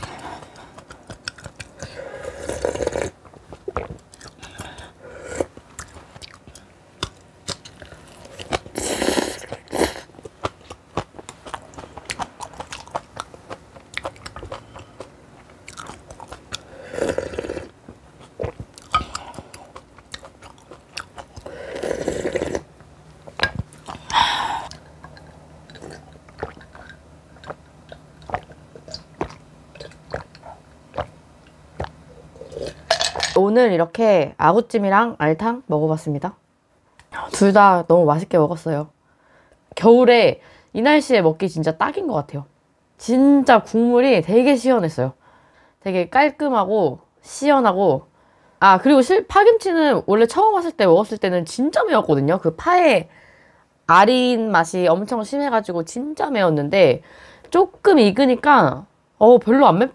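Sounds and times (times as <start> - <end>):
person chewing and crunching food: 0.0 - 32.9.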